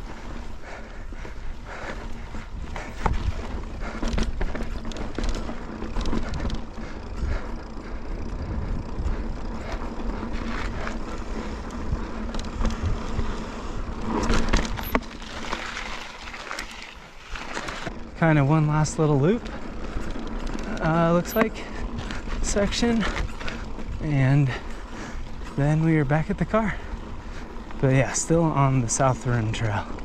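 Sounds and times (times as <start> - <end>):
bike rattling and knocking: 0.0 - 30.0
bike tyre rolling on rock: 0.0 - 30.0
wind on microphone: 2.2 - 4.8.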